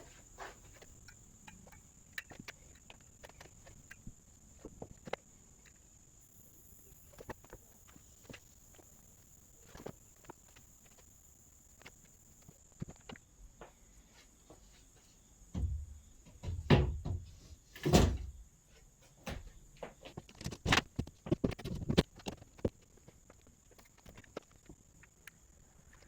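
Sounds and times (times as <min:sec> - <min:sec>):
knocks of handling wood: 0:15.5 - 0:18.3.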